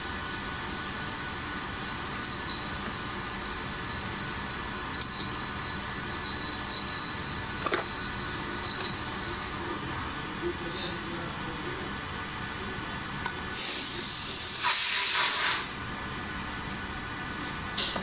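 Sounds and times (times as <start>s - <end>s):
machine running with high whine: 1.0s - 12.9s.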